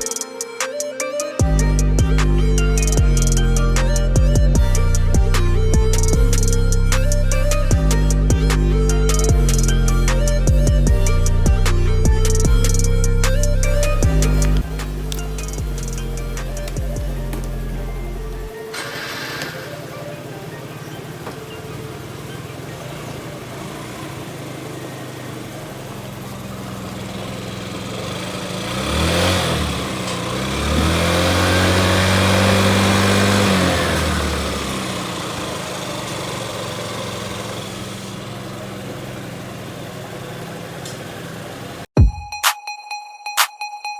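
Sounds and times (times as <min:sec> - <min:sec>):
scooter engine idling and revving: 0:00.0 - 0:42.0.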